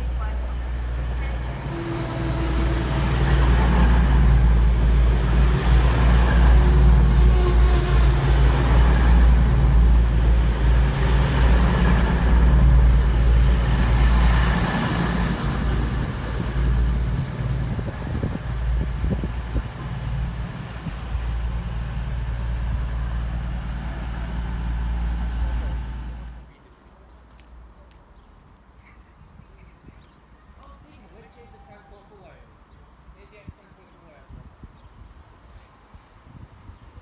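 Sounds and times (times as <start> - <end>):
diesel train engines rumbling: 0.0 - 26.6.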